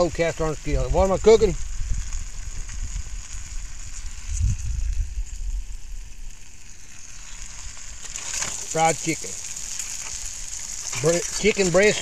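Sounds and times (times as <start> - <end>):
chicken frying in oil: 0.0 - 12.0
low rumble: 0.6 - 6.4.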